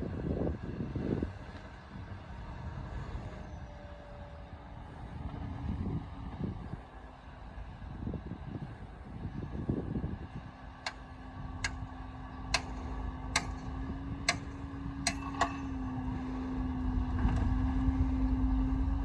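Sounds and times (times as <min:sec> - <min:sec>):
diesel engine droning: 0:00.0 - 0:19.0
sharp metallic clicks: 0:10.8 - 0:11.0, 0:11.6 - 0:11.8, 0:12.5 - 0:15.7.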